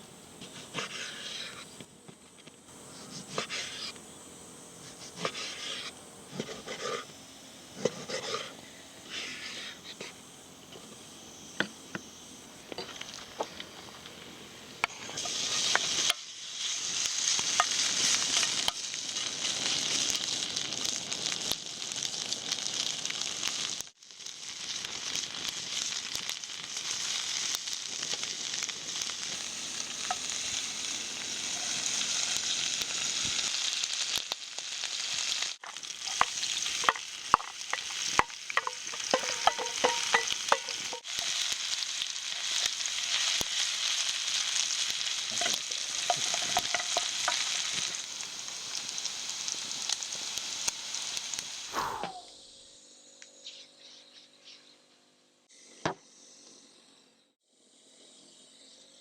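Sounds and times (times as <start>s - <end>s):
food sizzling in a pan: 0.0s - 1.9s, 2.7s - 52.2s.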